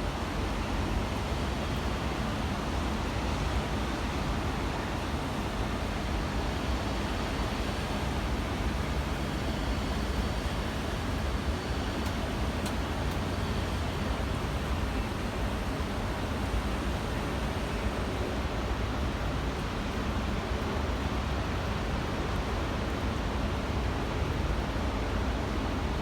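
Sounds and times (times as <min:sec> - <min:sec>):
faint high ticks: 0:12.0 - 0:13.3.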